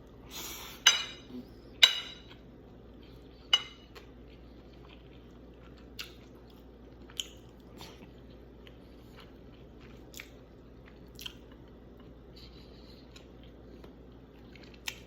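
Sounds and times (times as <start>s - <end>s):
cutlery clinking against plate: 0.8s - 2.4s, 3.5s - 3.9s.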